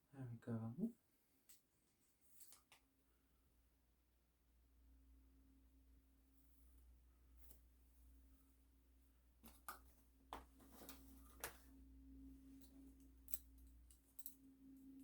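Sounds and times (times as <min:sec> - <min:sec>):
steady low hum: 0:03.4 - 0:15.0.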